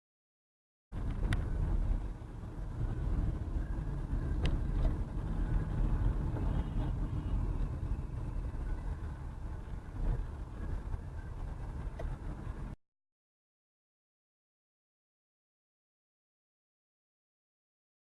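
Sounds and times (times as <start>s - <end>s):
car engine rumble: 0.9s - 12.8s
road noise: 0.9s - 12.8s.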